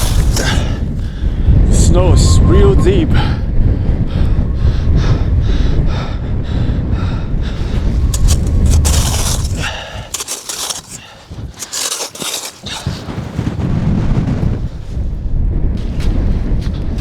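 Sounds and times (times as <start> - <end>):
shovel crunching in snow: 0.0 - 1.0, 7.6 - 13.5
wind buffeting microphone: 0.0 - 10.3.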